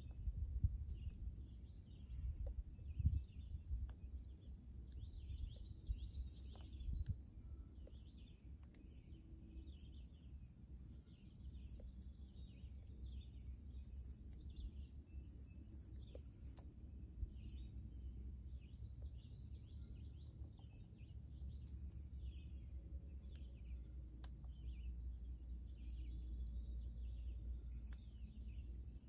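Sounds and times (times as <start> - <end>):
low rumble: 0.0 - 8.3
small birds chirping: 0.0 - 29.0.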